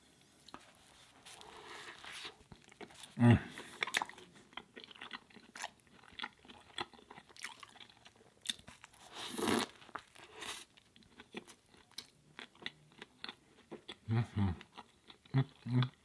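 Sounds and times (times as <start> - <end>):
wet chewing: 1.3 - 14.0.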